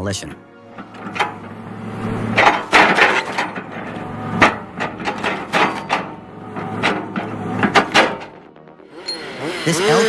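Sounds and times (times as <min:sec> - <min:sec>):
excavator diesel engine: 0:00.6 - 0:10.0.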